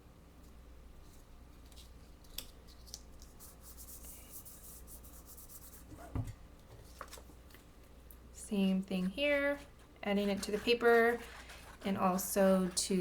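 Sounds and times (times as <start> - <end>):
rubbing and scratching on paper: 2.6 - 6.1, 9.5 - 13.0.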